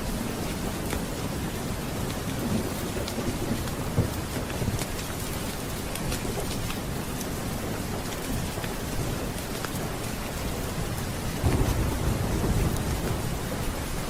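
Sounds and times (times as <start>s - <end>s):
heavy rain: 0.0s - 14.0s
low thunder rumble: 10.8s - 14.0s.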